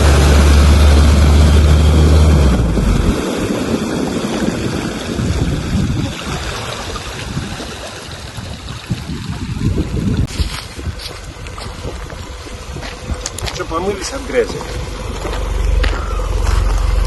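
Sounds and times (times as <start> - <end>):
vehicle engine droning: 0.0 - 4.4, 11.0 - 17.0
wind on microphone: 0.0 - 15.2
water sloshing and splashing: 1.3 - 17.0.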